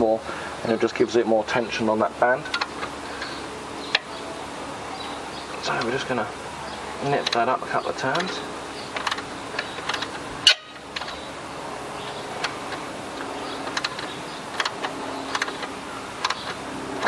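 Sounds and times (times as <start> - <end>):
faint steady hum: 0.0 - 17.0
wrench clicking on bolt: 2.4 - 4.1, 7.0 - 11.3, 12.0 - 17.0.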